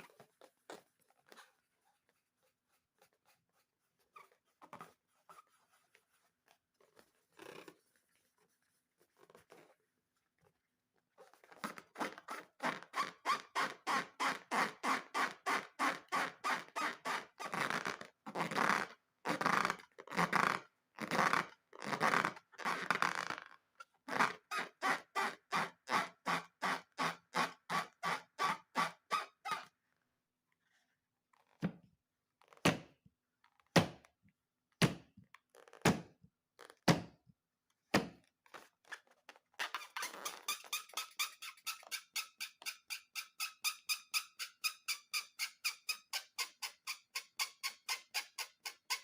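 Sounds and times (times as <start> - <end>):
rubber balloons squeaking: 0.0 - 6.3, 11.2 - 29.8, 35.5 - 36.0, 36.6 - 36.9, 38.4 - 49.0.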